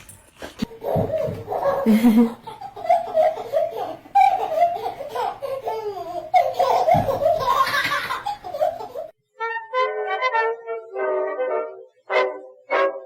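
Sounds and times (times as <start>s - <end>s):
baby laughing: 0.6s - 9.1s.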